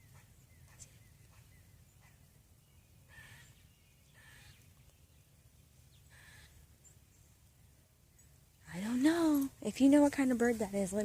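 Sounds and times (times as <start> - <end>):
bird barking calls: 0.0 - 4.9, 5.9 - 7.0.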